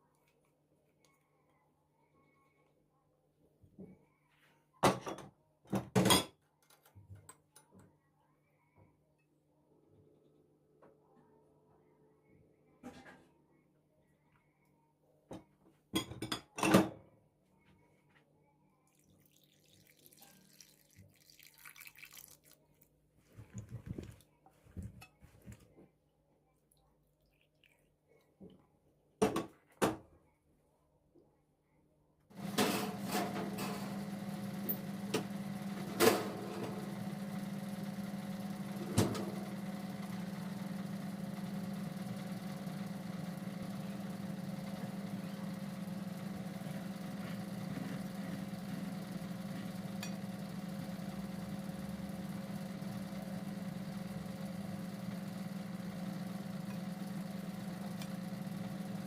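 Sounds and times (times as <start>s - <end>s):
electric motor hum: 32.3s - 59.0s.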